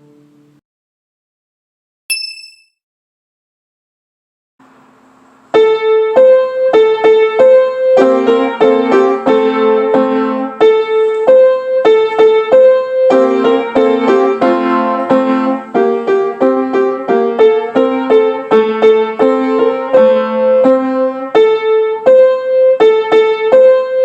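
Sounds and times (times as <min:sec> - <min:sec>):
piano playing children's song: 0:05.5 - 0:24.0.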